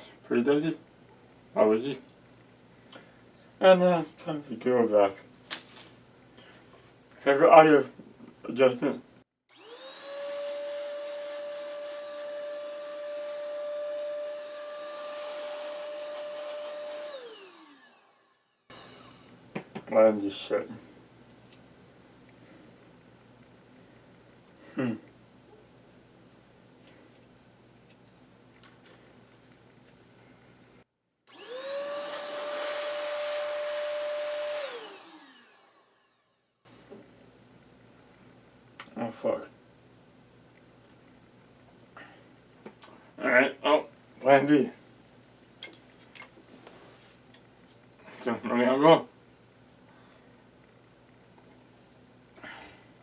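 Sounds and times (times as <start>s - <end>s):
vacuum cleaner motor whining: 9.5s - 19.4s, 31.3s - 36.4s.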